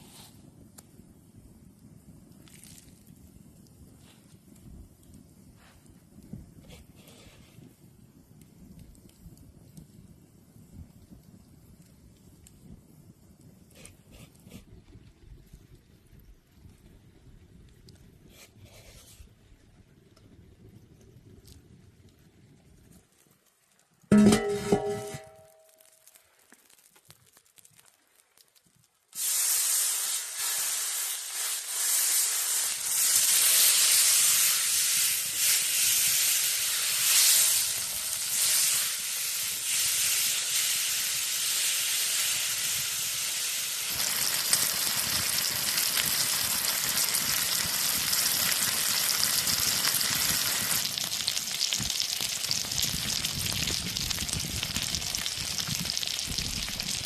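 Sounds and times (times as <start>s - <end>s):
food sizzling in hot oil: 29.1s - 57.0s.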